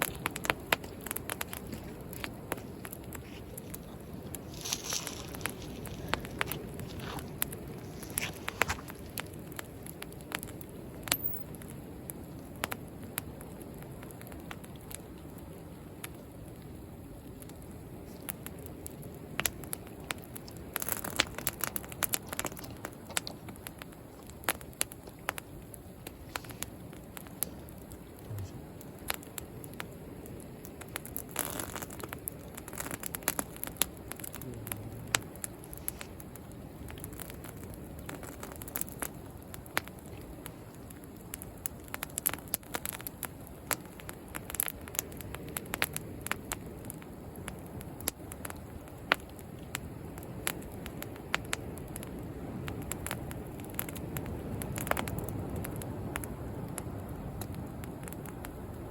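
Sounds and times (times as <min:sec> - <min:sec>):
sea waves: 0:00.0 - 0:11.4, 0:19.2 - 0:43.0
bonfire crackling and popping: 0:00.0 - 0:58.9.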